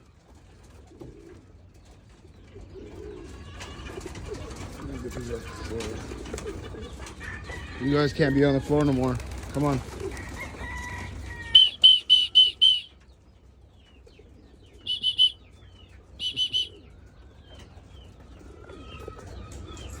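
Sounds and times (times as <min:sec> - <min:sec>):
wing flapping and rustling: 0:00.0 - 0:07.8, 0:08.6 - 0:20.0
young pigeons chirping: 0:00.0 - 0:20.0.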